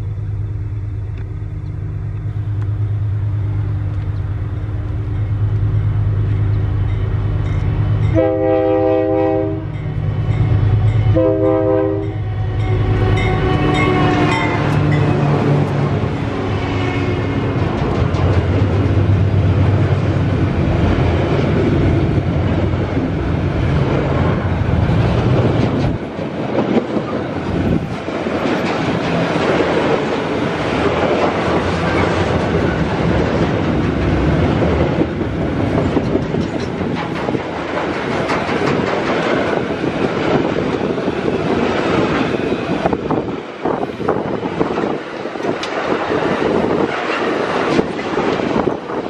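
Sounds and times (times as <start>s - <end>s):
low hum: 0.0s - 8.1s
freight wheels clacking on rails: 12.6s - 49.0s.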